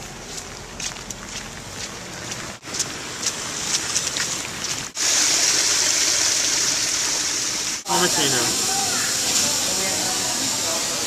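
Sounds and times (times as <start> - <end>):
water drips: 0.4 - 5.0
heavy rain hissing: 2.6 - 11.0.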